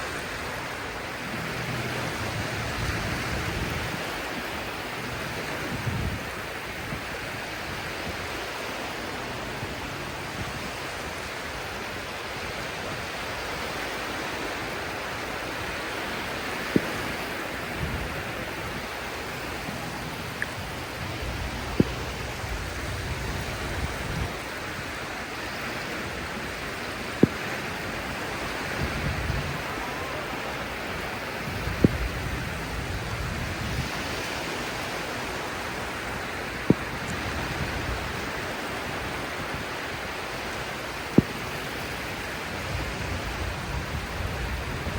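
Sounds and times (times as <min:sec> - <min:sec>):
surf washing on beach: 0:00.0 - 0:44.9.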